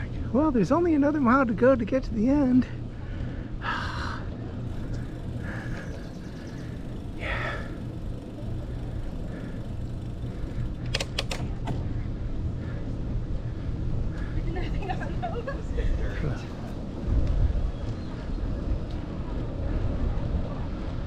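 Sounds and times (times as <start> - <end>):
bicycle riding noise: 0.0 - 21.0
wind rumble: 0.0 - 21.0
sharp clicks: 10.3 - 11.8.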